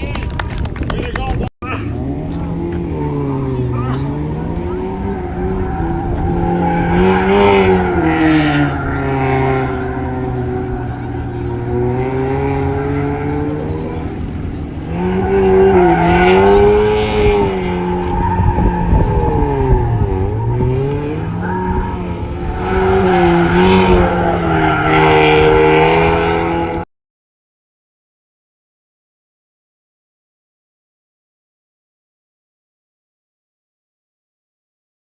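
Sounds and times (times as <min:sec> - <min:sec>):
tyre noise: 0:01.0 - 0:26.8
car engine revving: 0:01.6 - 0:26.9.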